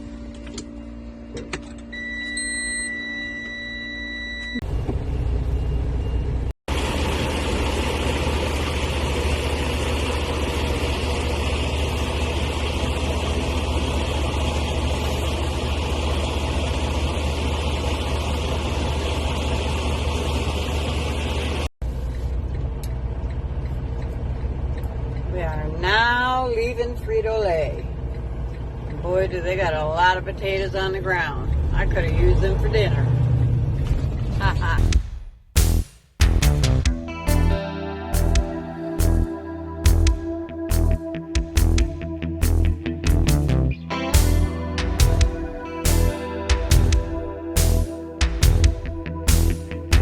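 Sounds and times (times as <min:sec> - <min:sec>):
low truck engine drone: 0:00.0 - 0:50.0
short electronic beep: 0:01.9 - 0:06.5
road noise: 0:04.6 - 0:34.8, 0:35.6 - 0:50.0
truck idling hum: 0:04.7 - 0:31.2, 0:37.3 - 0:50.0.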